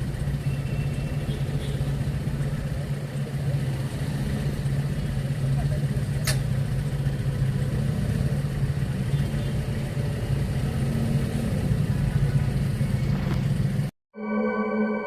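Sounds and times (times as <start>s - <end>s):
street traffic hum: 0.0s - 13.9s
sharp click: 6.2s - 6.5s.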